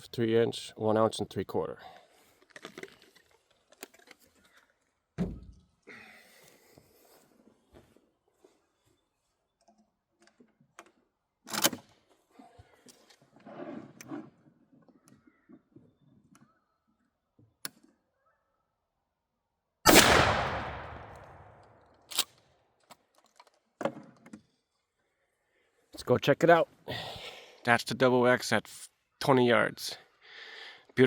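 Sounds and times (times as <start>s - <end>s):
shotgun shot: 19.9s - 21.6s.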